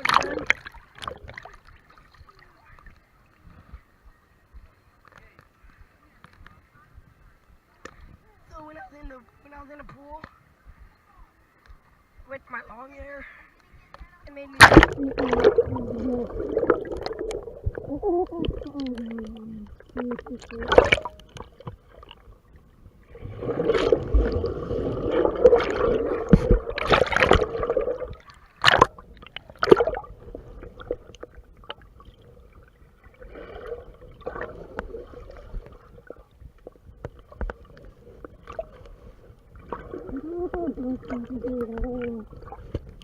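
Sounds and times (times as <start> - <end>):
heavy water splashing: 0.0 - 2.6, 14.5 - 22.3, 23.0 - 43.0
water sloshing and gurgling: 0.0 - 4.0, 13.8 - 43.0.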